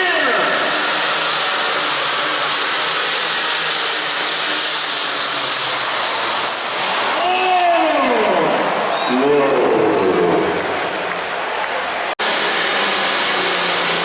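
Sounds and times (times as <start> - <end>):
loud tractor engine running: 0.0 - 7.2, 12.2 - 14.0.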